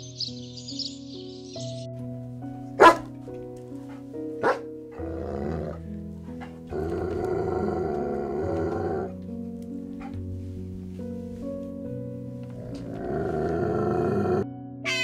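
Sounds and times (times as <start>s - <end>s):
background music: 0.0s - 15.0s
dog barking: 2.8s - 3.1s, 3.9s - 5.8s
dog growling: 2.8s - 3.1s, 4.4s - 9.2s, 12.4s - 14.4s.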